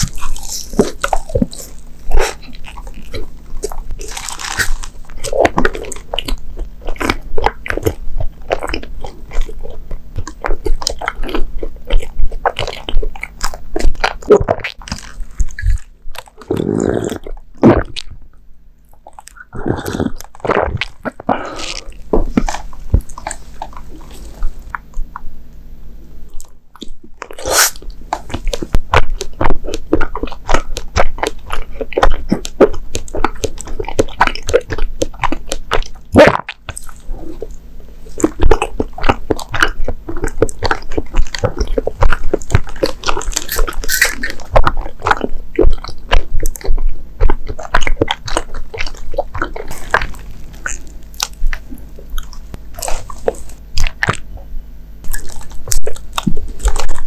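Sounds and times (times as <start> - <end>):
chewing sticky dumplings: 0.0 - 18.2, 18.8 - 57.0
mouth clicks: 18.9 - 25.6, 26.3 - 57.0.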